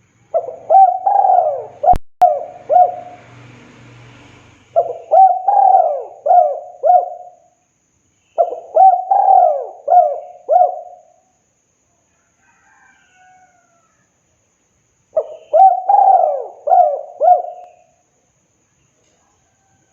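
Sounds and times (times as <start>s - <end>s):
dove cooing: 0.3s - 3.2s, 4.7s - 7.4s, 8.4s - 11.2s, 15.2s - 17.9s.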